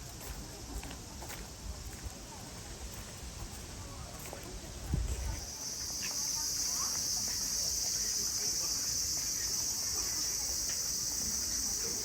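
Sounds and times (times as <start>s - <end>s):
insects chorus: 5.2s - 12.0s.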